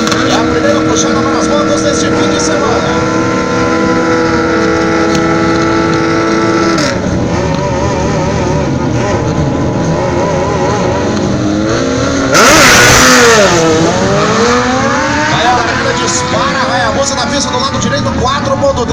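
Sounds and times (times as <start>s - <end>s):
motorcycle engines revving: 0.0s - 18.9s
motorcycle full-throttle launch: 10.4s - 16.4s.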